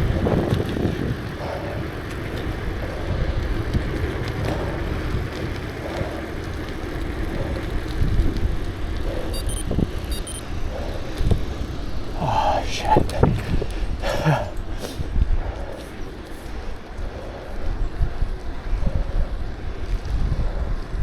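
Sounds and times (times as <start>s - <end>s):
bicycle tyre and road noise: 0.0s - 21.0s
wind buffeting microphone: 0.0s - 21.0s.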